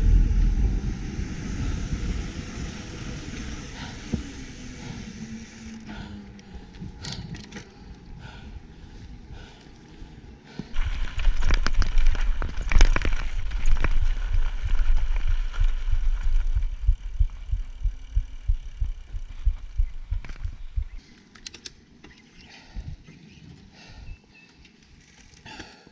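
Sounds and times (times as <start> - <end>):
wind rumble on microphone: 0.0 - 9.4, 10.0 - 21.0, 22.6 - 23.1
bike knocks and rattles: 10.7 - 21.7.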